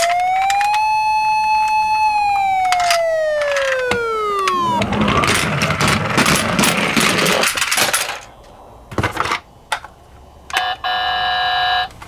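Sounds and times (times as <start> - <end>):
electronic siren tone: 0.0 - 6.8
toy car clattering down cardboard: 2.7 - 8.3.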